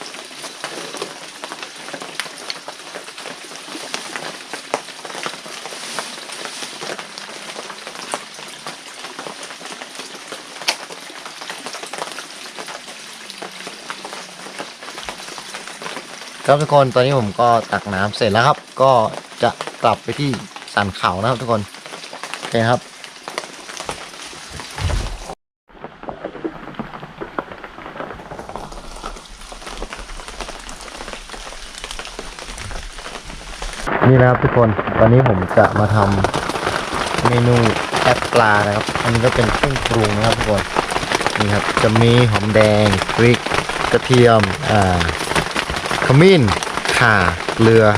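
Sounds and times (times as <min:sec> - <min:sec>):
heavy rain pattering: 0:00.0 - 0:47.9
water drops pattering: 0:26.1 - 0:47.9.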